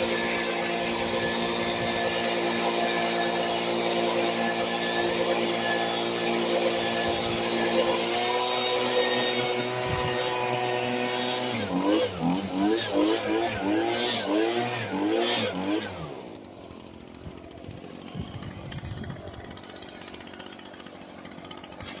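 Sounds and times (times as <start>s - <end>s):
small engine revving: 0.0s - 22.0s.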